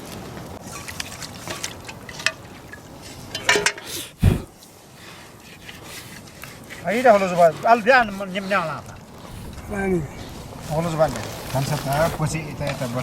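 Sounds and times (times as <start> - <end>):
liquid sloshing and dripping: 0.6 - 3.8.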